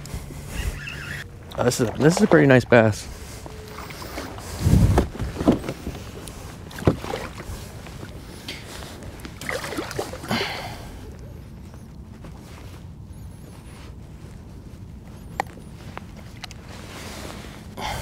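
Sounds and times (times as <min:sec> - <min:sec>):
rushing water: 0:01.5 - 0:03.0, 0:09.1 - 0:10.7.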